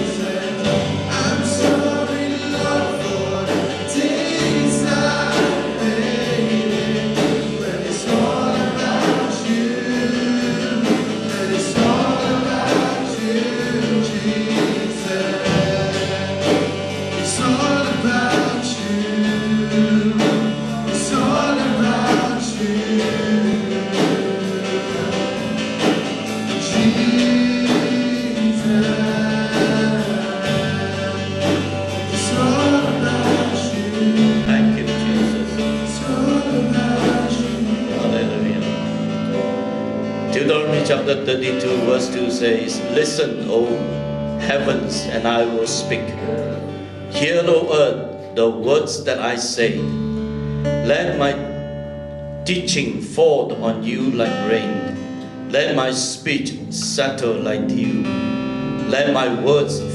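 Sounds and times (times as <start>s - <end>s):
steady drum beat: 0.0s - 42.1s
group of voices singing: 0.0s - 48.0s
sustained bass: 0.0s - 59.9s.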